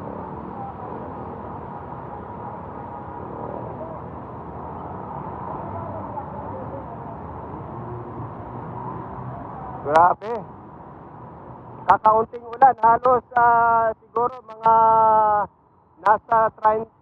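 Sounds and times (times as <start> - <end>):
faint distant voices: 0.0 - 9.0
street noise: 0.0 - 17.0.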